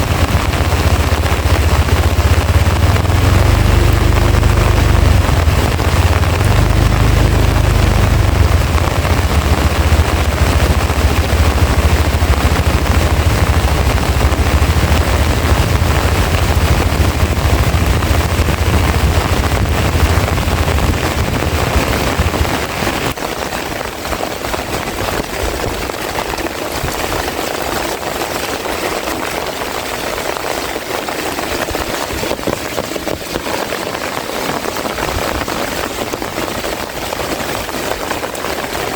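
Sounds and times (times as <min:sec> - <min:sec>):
deep rumble: 0:00.0 - 0:23.0
heavy rain falling: 0:00.0 - 0:38.9.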